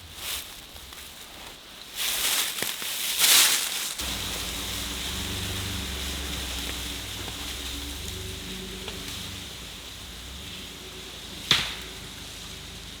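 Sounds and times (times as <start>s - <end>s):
rain: 4.0s - 13.0s
steady low hum: 4.0s - 13.0s
wind gusts: 4.0s - 13.0s.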